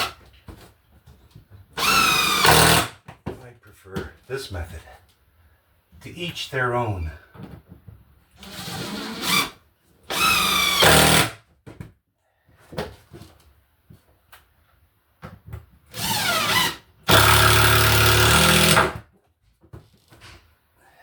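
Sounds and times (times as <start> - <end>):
power drill driving screws: 1.8 - 2.9, 10.1 - 11.4, 15.9 - 19.0.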